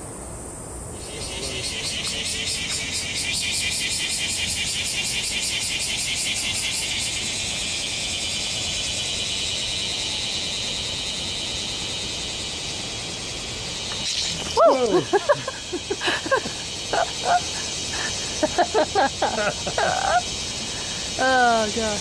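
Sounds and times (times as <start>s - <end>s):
cicadas buzzing: 0.0s - 22.0s.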